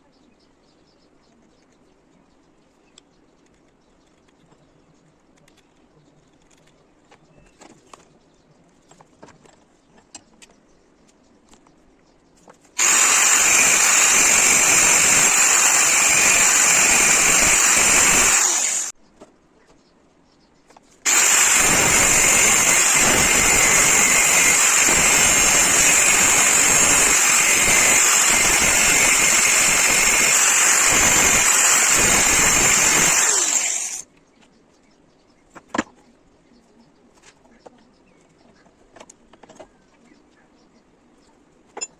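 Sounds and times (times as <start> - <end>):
metalworking power tool whining: 12.8 - 18.9, 21.1 - 34.0.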